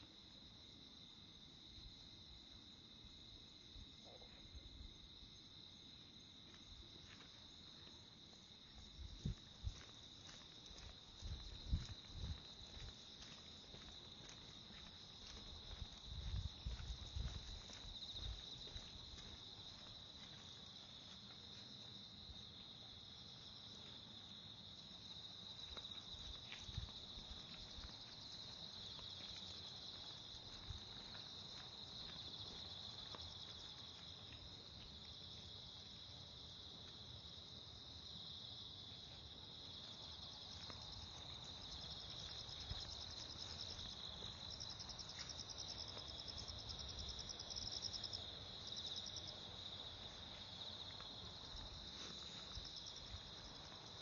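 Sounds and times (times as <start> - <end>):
faint footsteps thudding: 8.8 - 21.2.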